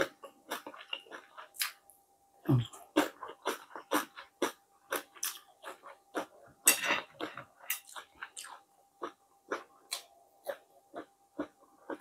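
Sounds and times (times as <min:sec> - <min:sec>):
person chewing with mouth smacks: 0:02.5 - 0:06.3.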